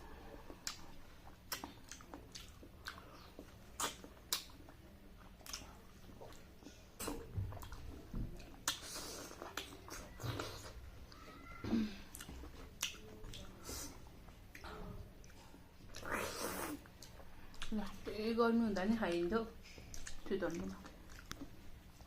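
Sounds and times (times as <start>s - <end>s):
wet chewing and lip smacks: 0.5s - 11.2s, 12.1s - 18.0s, 19.1s - 22.0s.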